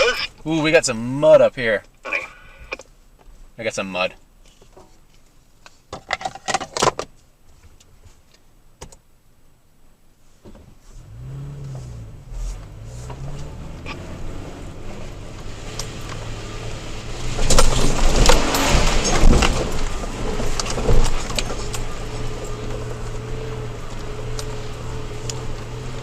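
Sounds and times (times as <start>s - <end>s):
truck engine revving: 11.1s - 26.0s
truck rattling and clunking: 12.6s - 26.0s.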